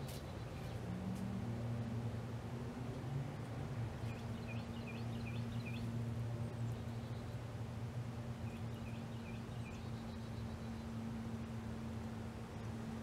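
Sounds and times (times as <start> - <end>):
steady low hum: 0.0 - 13.0
bird chirping: 4.0 - 7.4, 8.4 - 11.0.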